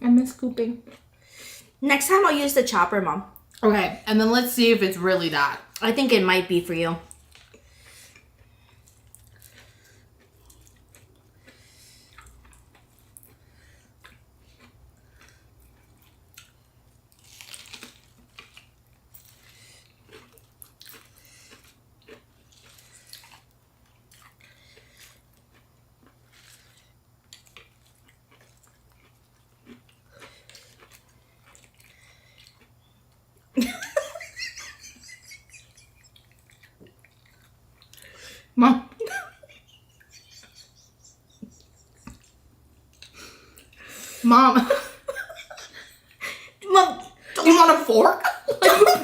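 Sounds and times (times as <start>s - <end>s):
chewing and biting food: 7.1s - 33.6s, 35.6s - 38.2s.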